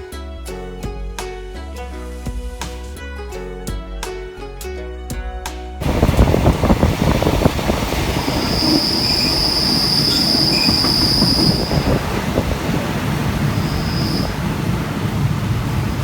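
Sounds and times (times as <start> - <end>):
high-pitched wheel squeal: 5.8 - 14.7
train rumbling on rails: 5.8 - 16.0.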